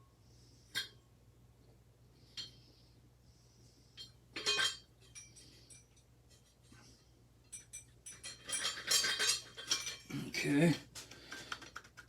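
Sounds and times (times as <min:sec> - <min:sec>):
metal parts clinking and rattling: 0:07.4 - 0:10.1.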